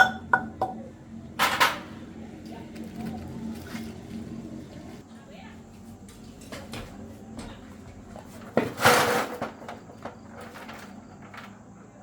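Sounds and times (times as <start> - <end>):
loud clattering scrape: 8.5 - 9.8.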